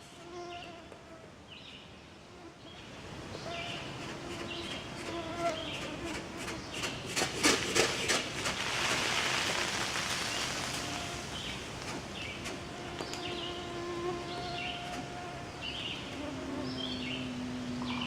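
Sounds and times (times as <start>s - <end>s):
birds chirping: 10.0s - 18.0s
mosquitoes whining: 12.5s - 18.0s.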